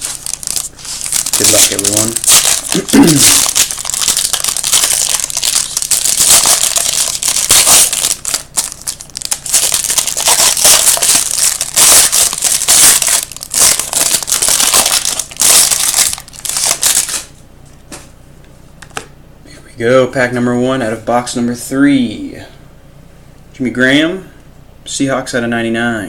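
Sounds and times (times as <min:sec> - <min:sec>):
wrappers tearing and crinkling: 0:00.0 - 0:17.3.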